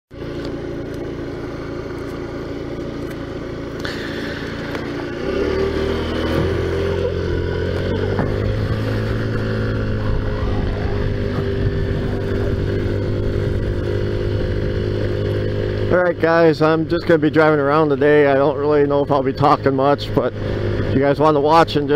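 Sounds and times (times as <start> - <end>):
scooter engine running: 0.1 - 21.9.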